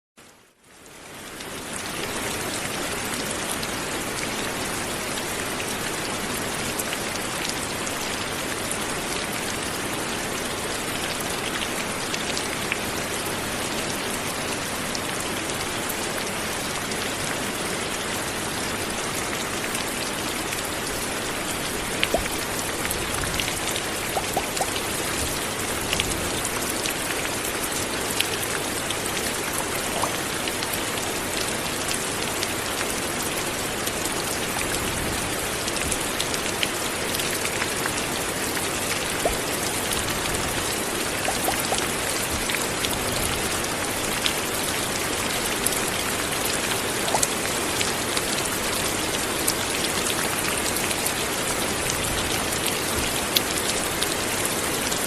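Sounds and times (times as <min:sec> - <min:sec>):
light rain falling: 0:00.2 - 0:55.0
close water drips: 0:22.0 - 0:25.4, 0:29.7 - 0:30.4, 0:39.0 - 0:40.0, 0:41.1 - 0:42.5, 0:46.8 - 0:47.5.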